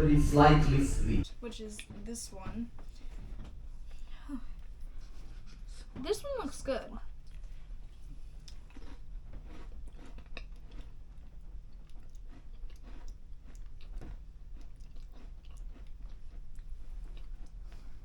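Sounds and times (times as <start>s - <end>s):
low steady hum: 0.0s - 1.9s
person chewing: 7.2s - 18.0s.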